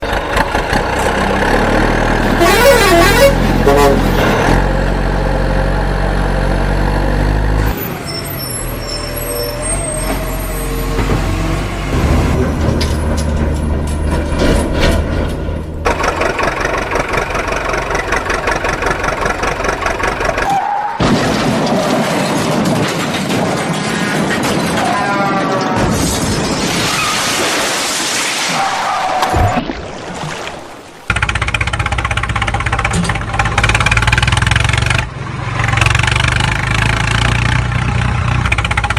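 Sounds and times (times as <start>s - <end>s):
truck engine: 0.0s - 27.1s, 31.0s - 38.9s
horn honks: 2.2s - 4.3s.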